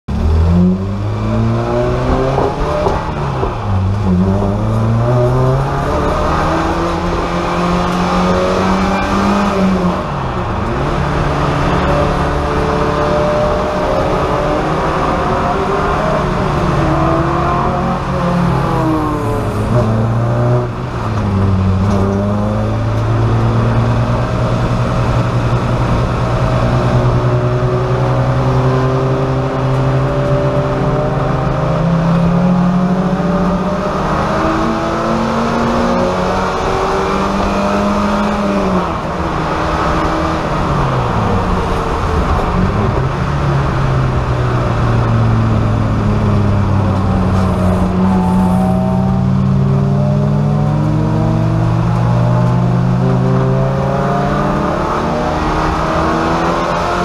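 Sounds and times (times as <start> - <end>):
race car engine revving: 0.1 - 57.0.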